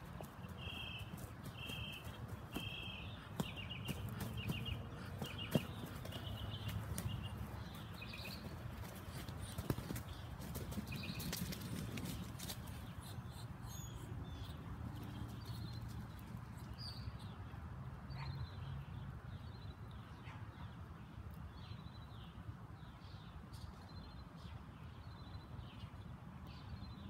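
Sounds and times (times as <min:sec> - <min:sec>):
bird chirping trills: 0:00.0 - 0:17.4.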